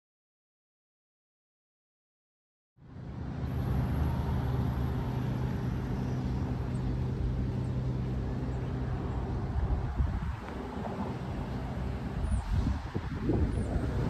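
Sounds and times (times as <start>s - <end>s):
car engine idling: 2.9s - 12.4s
wind buffeting microphone: 7.0s - 14.0s.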